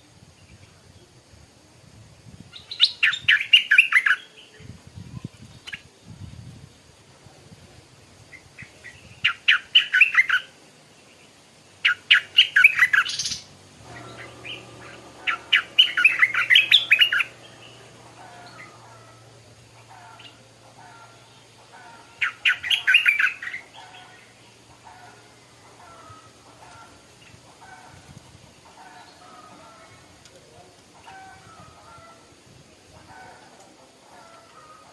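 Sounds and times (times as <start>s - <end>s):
bird singing: 2.6s - 6.2s, 8.4s - 30.3s
faint low hum: 10.6s - 34.9s.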